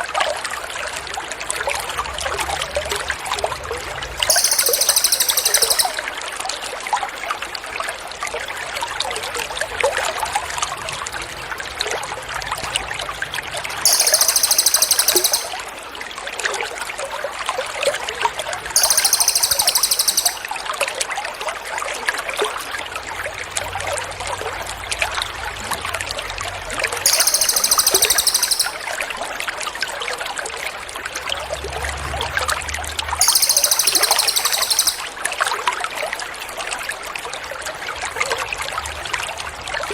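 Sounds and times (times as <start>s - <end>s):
songbird buzzy trill: 4.3s - 6.0s, 13.9s - 15.6s, 18.8s - 20.6s, 27.1s - 28.9s, 33.2s - 35.1s.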